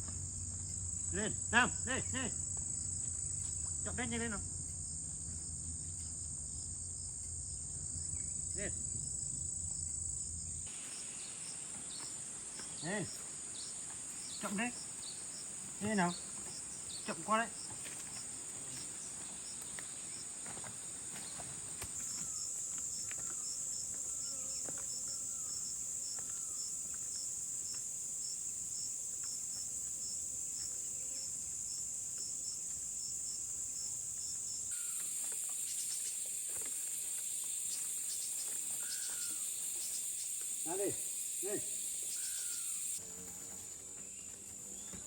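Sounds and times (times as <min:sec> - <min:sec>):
pulsing insect chirp: 0:00.0 - 0:45.0
insects shrilling: 0:10.2 - 0:44.2.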